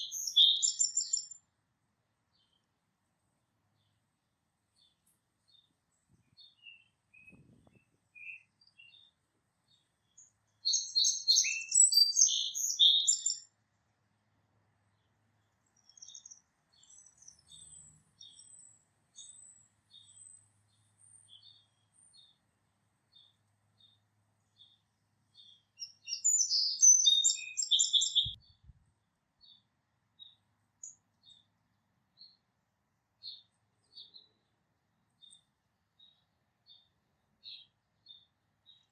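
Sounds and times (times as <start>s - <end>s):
songbird warbling: 0.0s - 1.3s, 10.7s - 13.4s, 25.8s - 28.4s
small birds chipping: 0.0s - 1.4s, 4.7s - 13.6s, 14.7s - 32.5s, 33.2s - 38.9s.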